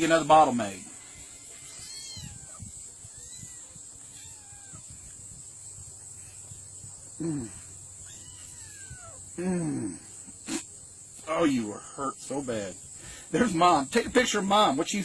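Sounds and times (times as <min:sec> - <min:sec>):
insect chirring: 0:00.0 - 0:15.0
kittens mewing: 0:01.0 - 0:05.4, 0:07.1 - 0:10.8.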